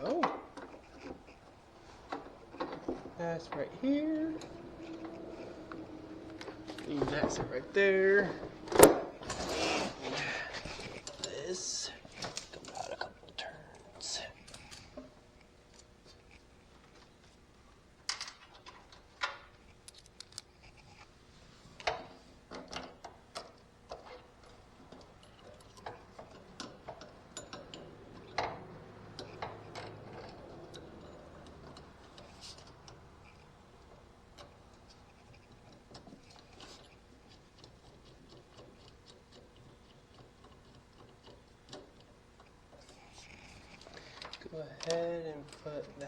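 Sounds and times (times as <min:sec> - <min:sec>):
hand tools clicking and knocking: 0:00.0 - 0:09.1, 0:21.8 - 0:46.0.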